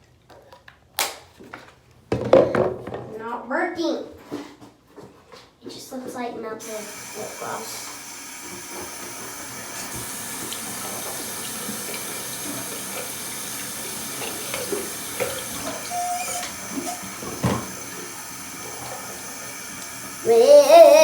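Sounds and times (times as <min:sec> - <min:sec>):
tap water running into sink: 0:06.6 - 0:21.0.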